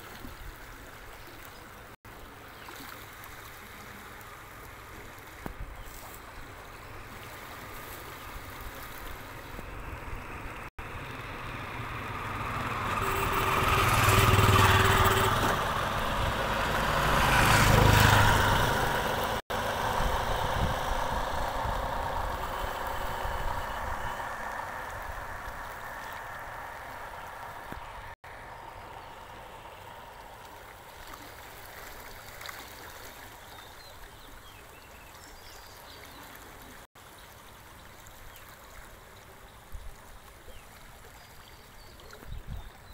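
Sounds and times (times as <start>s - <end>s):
rushing water: 0.0s - 42.9s
motor engine passing: 7.1s - 32.1s.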